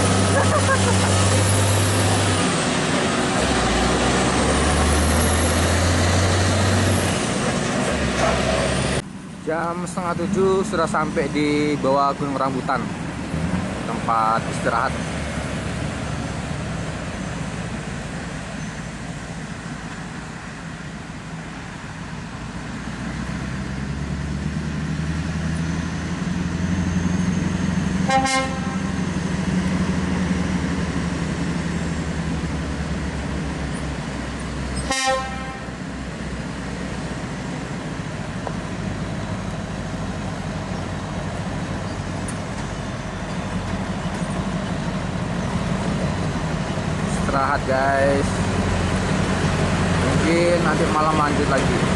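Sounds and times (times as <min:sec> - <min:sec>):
truck diesel engine rumble: 0:00.0 - 0:51.9
truck horn toots: 0:28.0 - 0:29.0, 0:34.8 - 0:35.7.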